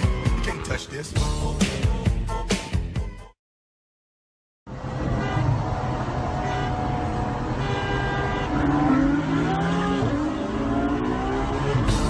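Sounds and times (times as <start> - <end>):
car engine accelerating: 4.7 - 12.0.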